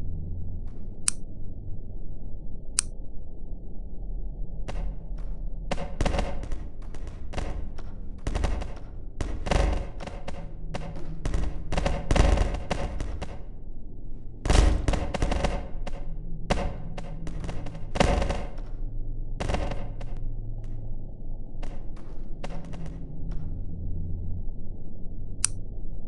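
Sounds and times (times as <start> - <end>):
sharp knocks and clatters: 4.7 - 13.5, 14.5 - 18.7, 19.4 - 20.2.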